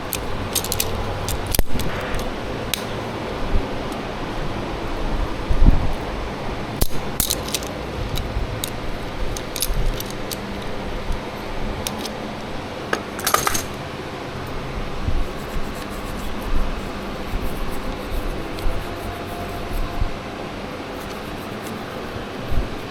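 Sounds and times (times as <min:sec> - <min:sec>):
metal tools clinking: 0:00.0 - 0:03.0, 0:06.8 - 0:10.8, 0:11.8 - 0:12.2, 0:12.9 - 0:13.8.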